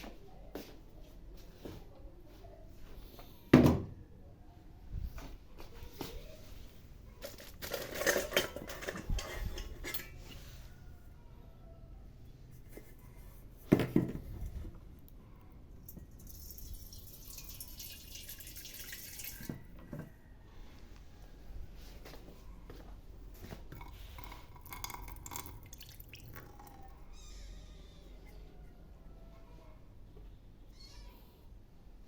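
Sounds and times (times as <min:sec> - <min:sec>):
dishes and utensils clattering: 0:07.2 - 0:10.4, 0:23.7 - 0:26.7.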